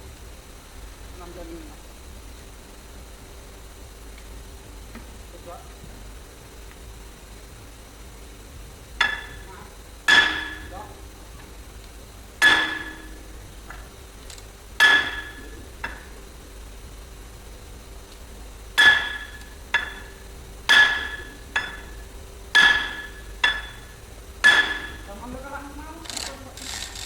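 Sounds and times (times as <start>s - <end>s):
hammer striking ringing steel: 9.0s - 10.8s, 12.4s - 13.3s, 14.8s - 16.0s, 18.8s - 25.1s.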